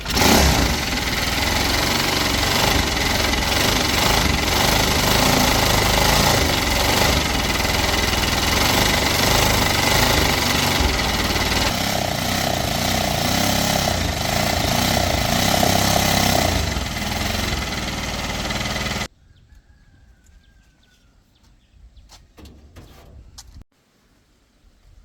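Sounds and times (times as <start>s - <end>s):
motor tricycle engine running: 0.0s - 19.1s.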